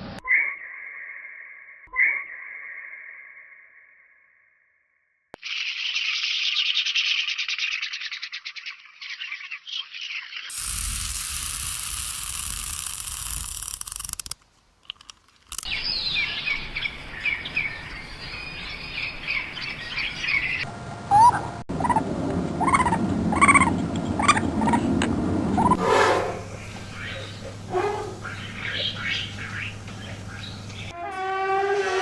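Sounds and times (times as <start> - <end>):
high bird chirps: 5.4 - 10.6, 26.4 - 31.0
steady hiss: 10.5 - 14.4
rising bird calls: 25.6 - 31.9.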